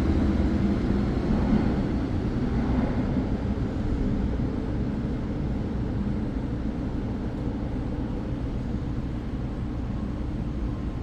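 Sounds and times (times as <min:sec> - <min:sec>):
electric train low rumble: 0:00.0 - 0:11.0.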